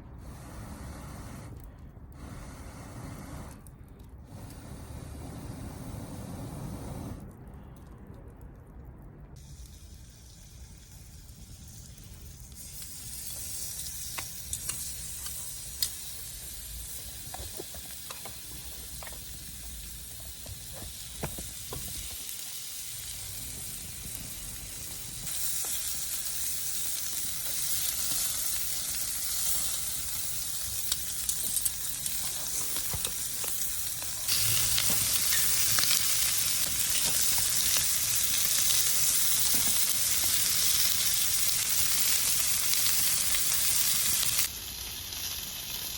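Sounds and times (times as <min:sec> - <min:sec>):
food sizzling in a pan: 0:09.4 - 0:45.9.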